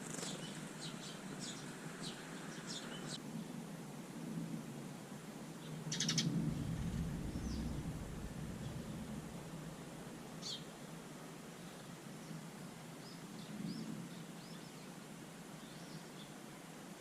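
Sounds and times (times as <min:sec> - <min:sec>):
sparrows chirping: 0:00.0 - 0:03.2, 0:05.6 - 0:09.2, 0:10.4 - 0:10.9, 0:13.0 - 0:15.0, 0:15.6 - 0:16.4
low steady background noise: 0:00.0 - 0:17.0.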